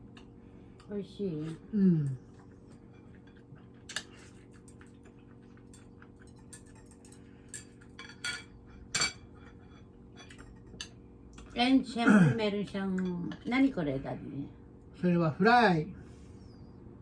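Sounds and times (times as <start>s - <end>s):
utensils clinking on plates: 5.6s - 11.0s.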